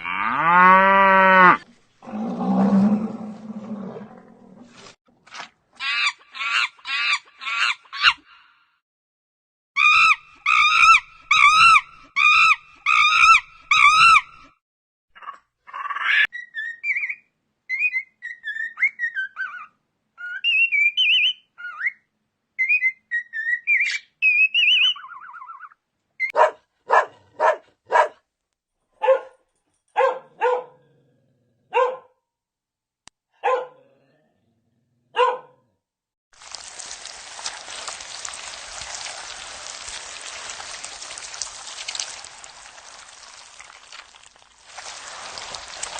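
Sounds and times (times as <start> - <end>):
bird chirping and warbling: 15.8 - 25.8
dog barking: 26.3 - 28.2, 29.0 - 30.9, 31.7 - 32.2, 33.4 - 33.9, 35.1 - 35.7.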